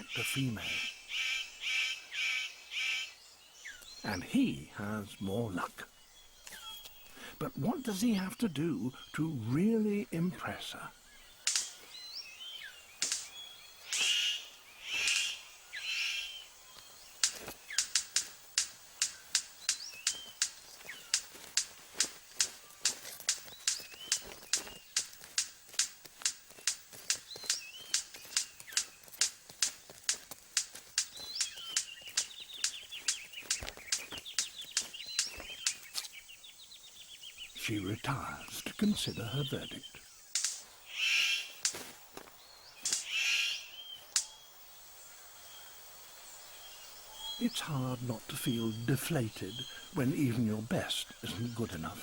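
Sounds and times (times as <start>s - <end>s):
thin chirps of forest birds: 0.0s - 52.0s
bird sharp clicks: 11.4s - 36.2s, 40.3s - 42.0s, 42.8s - 44.4s
bird harsh hissing bursts: 12.6s - 16.4s, 40.3s - 41.8s, 42.8s - 44.4s.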